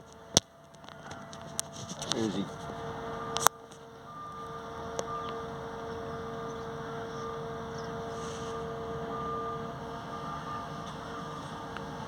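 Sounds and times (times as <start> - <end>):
boat engine drone: 0.0 - 12.0
constant humming tone: 0.0 - 12.0.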